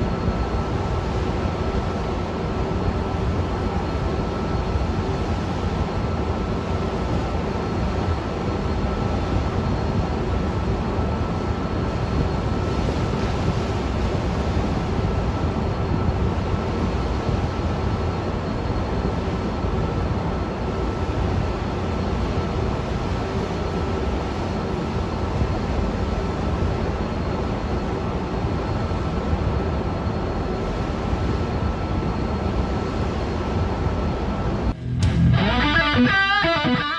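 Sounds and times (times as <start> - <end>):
aircraft engines roaring: 33.6 - 36.9.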